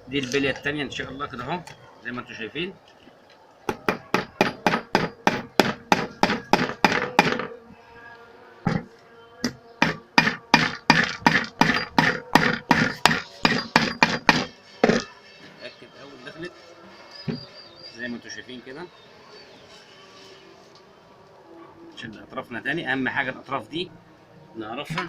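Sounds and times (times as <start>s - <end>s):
hammer striking ringing metal pipe: 10.2s - 15.1s.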